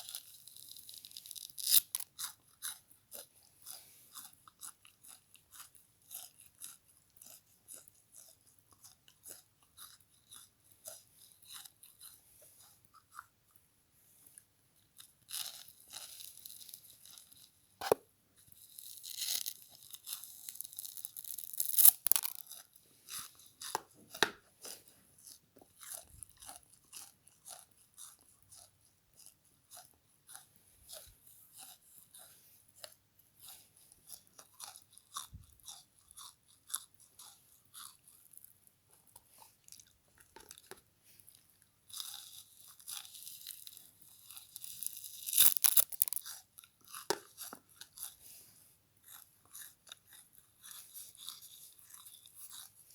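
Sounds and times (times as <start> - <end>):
sponge being crunched by teeth: 1.0 - 2.1, 18.8 - 22.5, 44.4 - 46.3
chewing clicks: 1.7 - 13.3, 19.8 - 40.8, 44.3 - 48.1.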